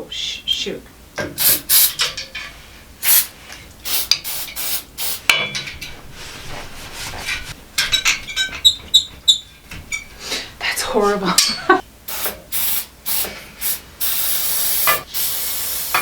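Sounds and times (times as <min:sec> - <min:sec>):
aerosol can spraying: 0:01.4 - 0:02.0, 0:03.0 - 0:05.3, 0:12.1 - 0:16.0.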